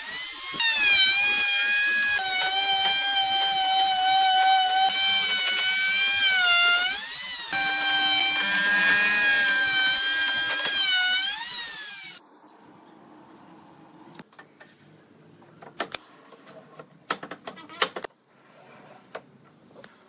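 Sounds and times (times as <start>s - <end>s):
electric power tool whining: 0.0s - 12.2s.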